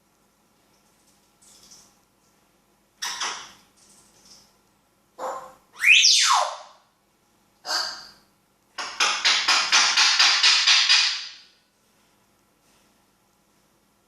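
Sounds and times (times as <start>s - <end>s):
parrot whistling and calling: 5.2s - 6.7s.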